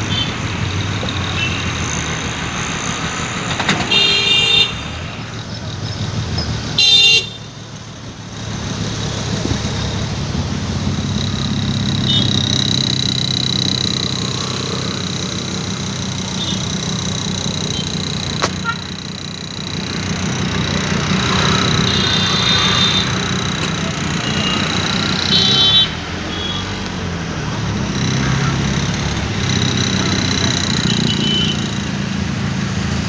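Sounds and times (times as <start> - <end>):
motor vehicle running: 0.0 - 33.0
vehicle horn toot: 3.6 - 5.0, 6.7 - 7.6, 12.0 - 12.5, 17.8 - 19.0, 21.0 - 26.8, 29.8 - 31.8.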